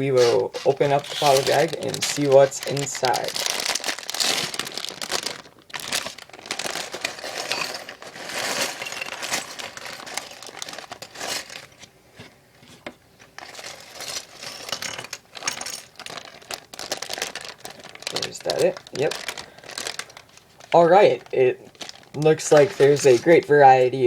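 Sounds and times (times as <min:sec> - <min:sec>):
plastic bag crinkling: 0:00.0 - 0:11.9, 0:13.2 - 0:24.0.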